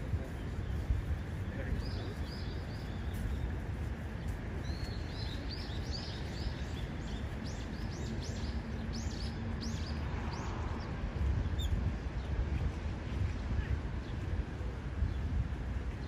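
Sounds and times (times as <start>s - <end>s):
small birds chirping: 0.0s - 12.4s.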